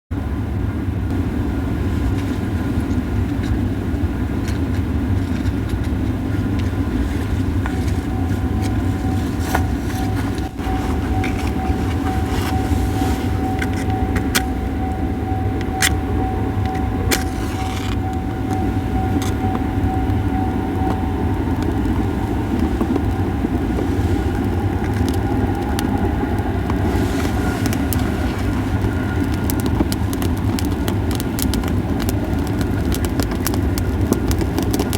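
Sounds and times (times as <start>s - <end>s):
low rumble: 0.2s - 34.9s
firewood crackling and popping: 1.1s - 34.9s
thin steady tone: 6.3s - 29.9s.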